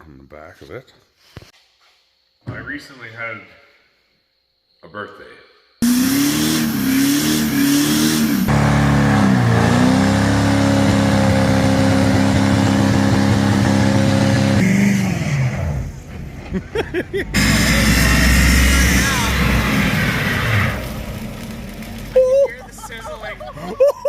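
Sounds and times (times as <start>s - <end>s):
truck engine revving: 5.8s - 24.0s.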